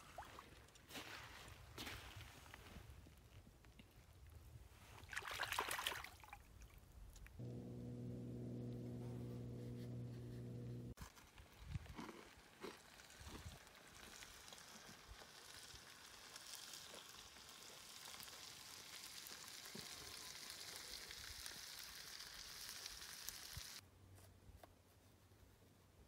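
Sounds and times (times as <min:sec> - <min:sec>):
food frying in a skillet: 0:12.4 - 0:23.8.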